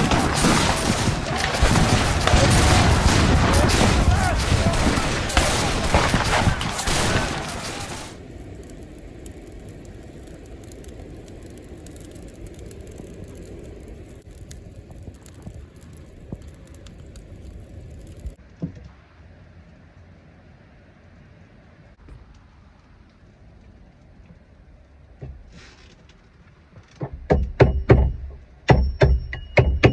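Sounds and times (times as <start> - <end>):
wind gusting across microphone: 0.0 - 18.4
faint clicks: 7.6 - 18.4.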